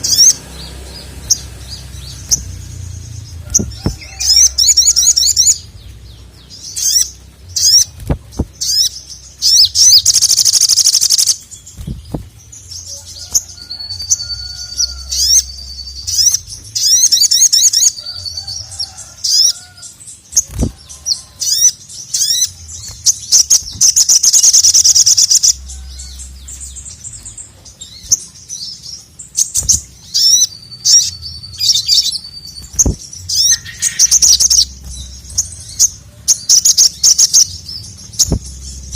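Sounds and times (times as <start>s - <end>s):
low thumps: 1.3s - 4.3s, 7.4s - 8.8s, 11.8s - 12.5s, 32.6s - 33.4s
bird chattering calls: 6.6s - 12.2s, 29.4s - 38.8s.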